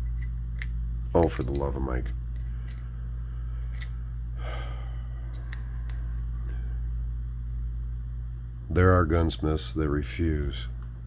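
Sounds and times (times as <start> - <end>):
metal gun parts clicking: 0.0 - 1.8, 2.4 - 2.8
low electrical hum: 0.0 - 11.0.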